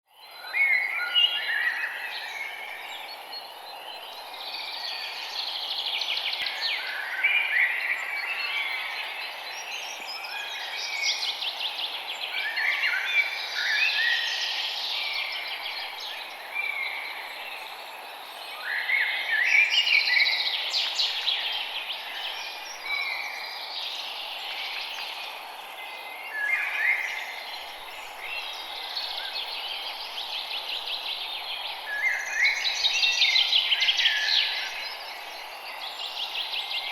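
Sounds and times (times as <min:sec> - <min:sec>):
songbirds singing: 0:00.1 - 0:36.9
steady hiss: 0:20.5 - 0:36.9.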